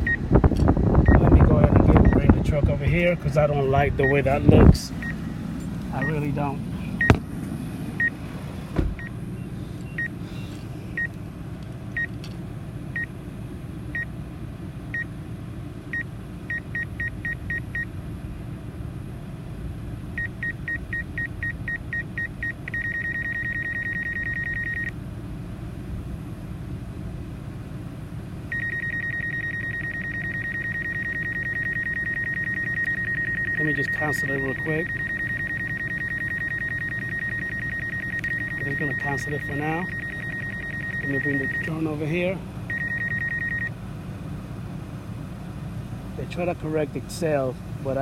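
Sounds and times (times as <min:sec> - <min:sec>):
truck low rumble: 0:00.0 - 0:48.0
warning beeps: 0:01.0 - 0:02.4, 0:04.0 - 0:05.2, 0:06.0 - 0:07.2, 0:08.0 - 0:08.2, 0:09.0 - 0:10.2, 0:16.0 - 0:17.9, 0:20.2 - 0:25.0, 0:28.5 - 0:42.1, 0:42.7 - 0:43.8
steady warning tone: 0:01.0 - 0:07.2, 0:20.1 - 0:25.0, 0:28.5 - 0:43.8.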